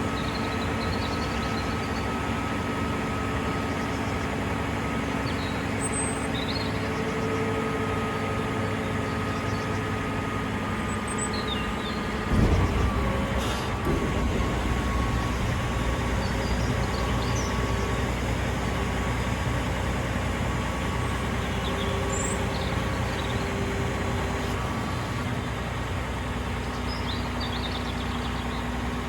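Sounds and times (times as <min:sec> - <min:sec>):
dump truck diesel engine running: 0:00.0 - 0:29.0.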